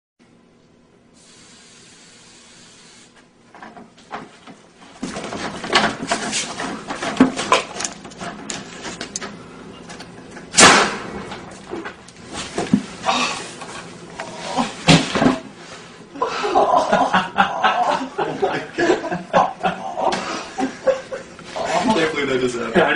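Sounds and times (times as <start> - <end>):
knocks and scrapes: 3.5 - 9.2
clattering and rustling handling: 3.5 - 10.5
loud sharp bang: 10.5 - 11.4.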